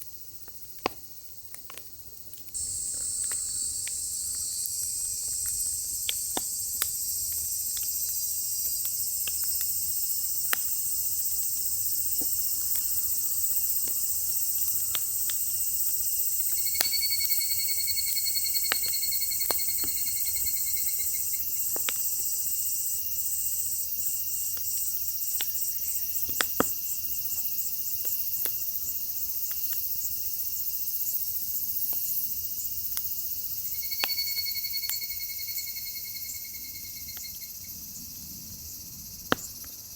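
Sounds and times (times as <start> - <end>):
insects chirring: 0.0 - 39.9
firewood crackling and popping: 0.4 - 22.6, 24.5 - 30.0
pulsing insect trill: 2.6 - 26.2, 26.8 - 39.9.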